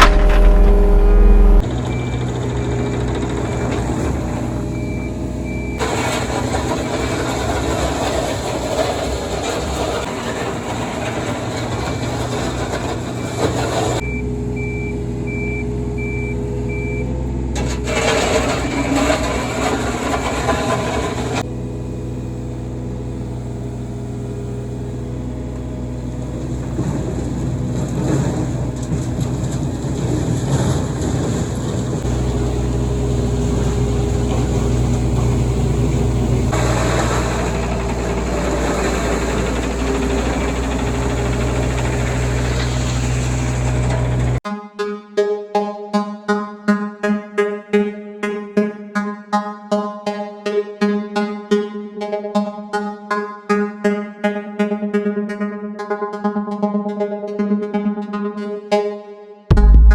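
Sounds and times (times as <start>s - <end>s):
hydraulic noise: 0.0s - 21.5s, 26.2s - 44.4s
excavator engine running: 0.0s - 44.4s, 59.5s - 59.9s.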